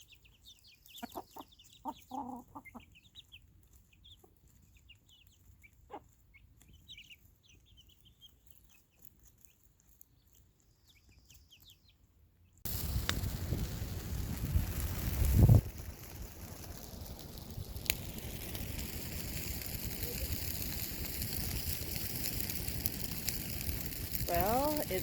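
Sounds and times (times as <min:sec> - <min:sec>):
high bird chirps: 0:00.0 - 0:09.0.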